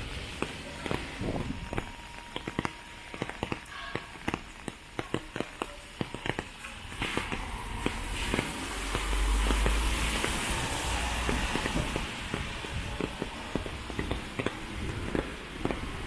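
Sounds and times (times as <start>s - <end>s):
sharp taps: 0.4s - 16.0s
faint hiss of rain: 5.6s - 16.0s.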